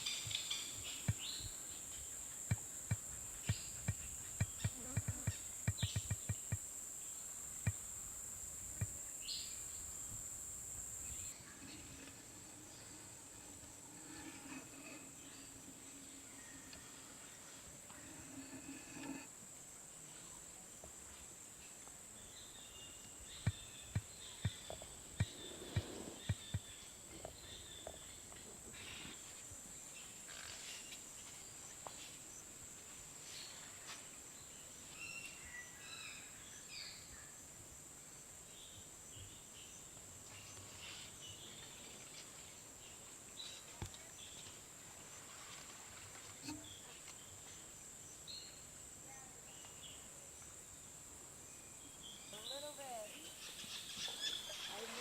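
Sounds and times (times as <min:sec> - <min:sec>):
high-pitched insect drone: 0:00.5 - 0:19.3.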